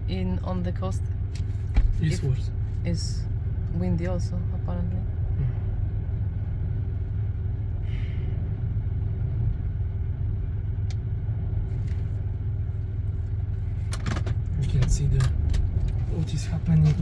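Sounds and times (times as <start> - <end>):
wind buffeting a car: 8.4 - 17.0.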